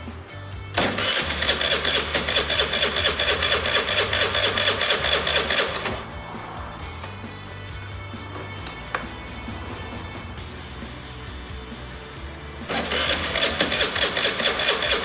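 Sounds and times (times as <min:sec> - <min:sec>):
scooter engine cranking: 0:00.8 - 0:06.2, 0:12.6 - 0:15.0.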